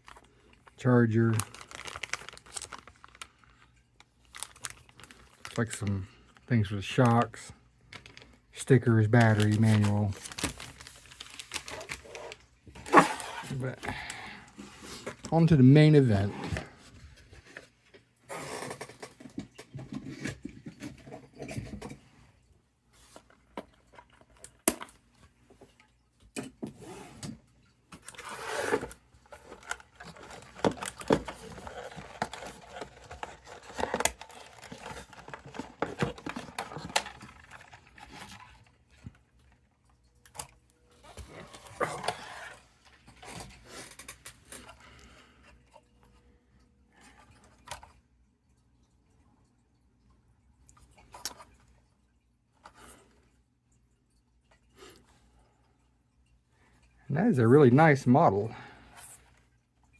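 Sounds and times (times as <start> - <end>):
packaging rustling and scraping: 0.0 - 6.4, 7.0 - 22.0, 26.6 - 39.2, 40.3 - 44.9.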